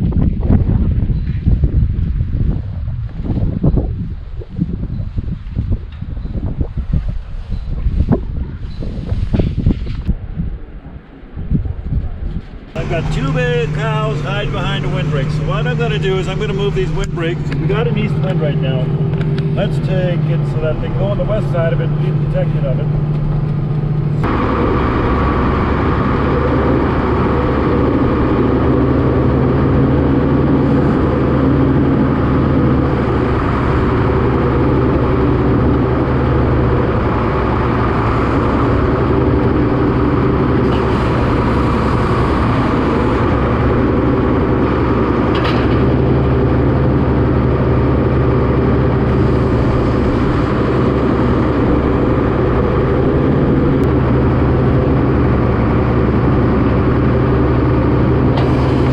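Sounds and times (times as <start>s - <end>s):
tractor engine running: 12.2s - 58.9s.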